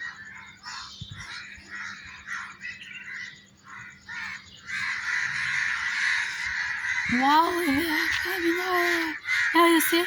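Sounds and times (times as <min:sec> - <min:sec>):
flock of birds calling: 0:00.0 - 0:10.0.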